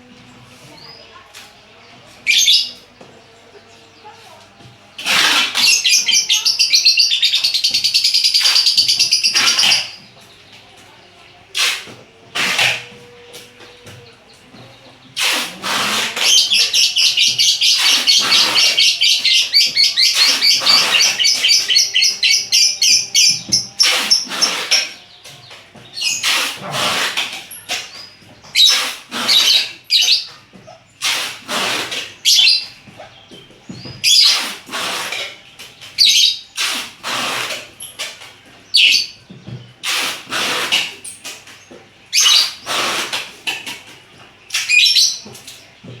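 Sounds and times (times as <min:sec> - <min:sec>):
lovebirds chattering: 0:00.0 - 0:46.0
shrill bird calls: 0:15.7 - 0:25.0.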